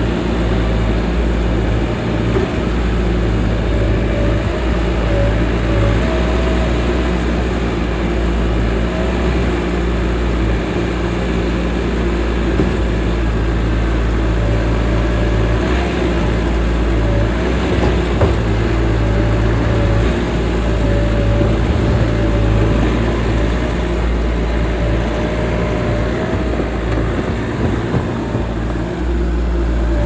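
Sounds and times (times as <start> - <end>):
engine running: 0.0 - 30.0.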